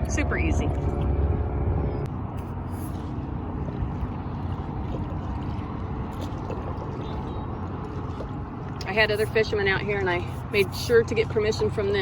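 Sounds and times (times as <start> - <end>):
steady low noise: 0.0 - 4.3
water splashing around kayak: 0.0 - 12.0.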